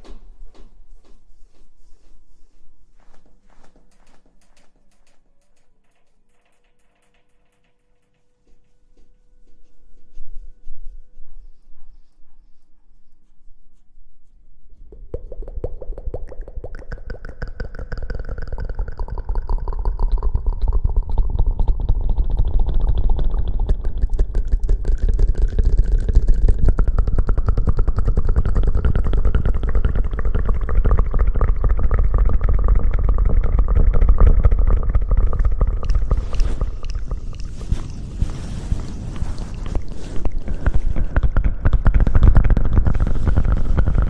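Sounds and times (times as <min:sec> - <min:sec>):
low rumble: 0:18.0 - 0:44.0
wet scrubbing of hair: 0:35.7 - 0:42.1.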